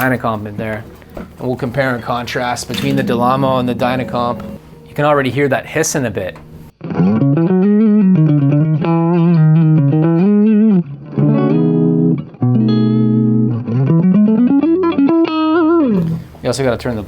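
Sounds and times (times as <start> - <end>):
electric guitar notes and chords: 2.4 - 5.5, 6.2 - 16.3.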